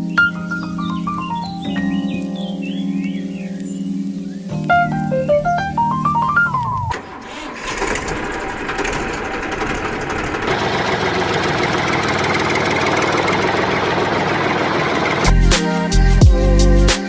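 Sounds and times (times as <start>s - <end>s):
tractor engine running: 4.6s - 15.6s.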